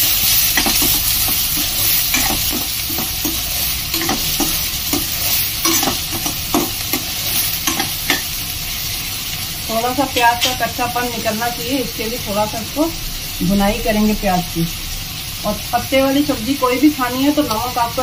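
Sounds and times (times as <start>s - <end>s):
steel spoon scraping pan: 0.0s - 8.4s
onions sizzling in oil: 0.0s - 18.0s.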